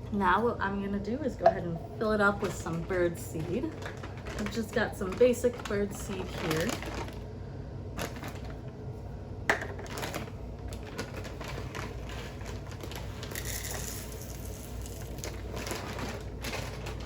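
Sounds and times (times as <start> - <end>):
seeds pattering into metal can: 13.2 - 15.8.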